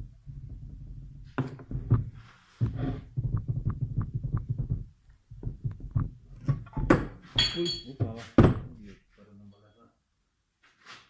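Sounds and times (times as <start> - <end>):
brief scraping hiss: 10.7 - 11.0.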